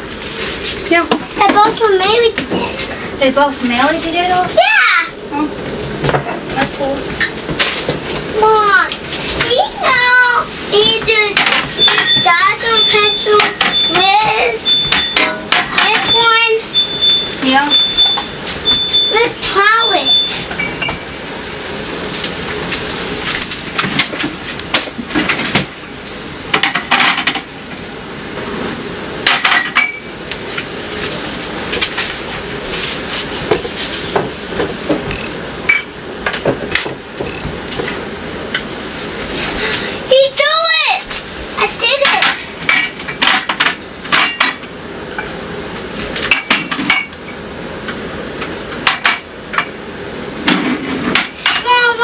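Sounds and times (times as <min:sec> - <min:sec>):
dishes clinking and clattering: 0:11.4 - 0:14.1, 0:20.0 - 0:21.0, 0:42.0 - 0:44.6.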